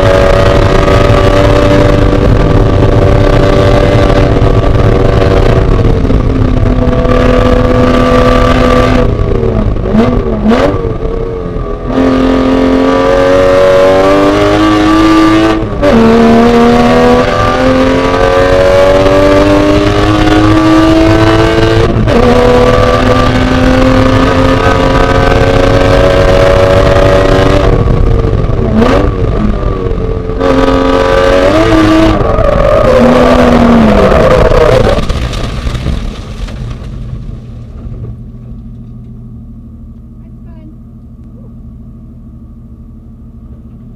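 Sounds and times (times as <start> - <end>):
throttle blips on downshifts: 0.0 - 35.0
race car engine accelerating: 0.0 - 35.2.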